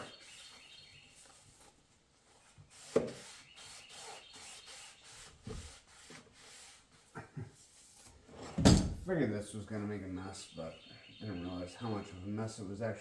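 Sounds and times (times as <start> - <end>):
paper towels wiping: 2.4 - 8.1
dull thump: 8.6 - 9.1.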